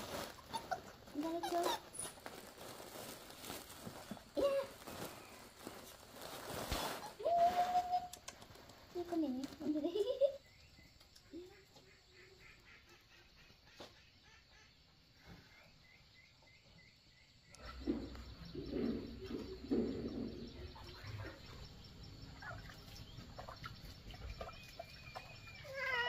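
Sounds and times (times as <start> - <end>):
outdoor background noise: 0.0 - 26.0
birds chirping: 8.4 - 26.0.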